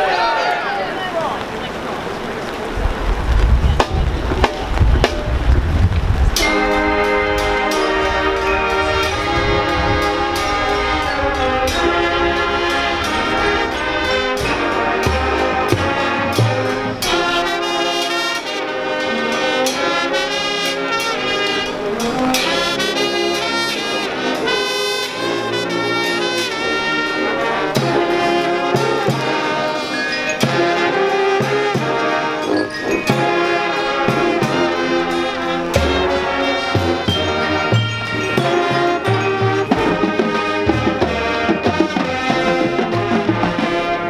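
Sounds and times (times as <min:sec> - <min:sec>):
marching band brass: 0:00.0 - 0:44.0
drumline hits: 0:03.5 - 0:44.0.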